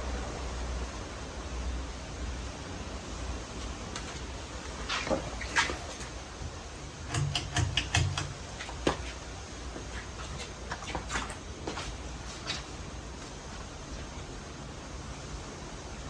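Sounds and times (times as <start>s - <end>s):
ceiling fan motor humming: 5.6s - 10.7s
sharp clicks: 7.1s - 8.5s.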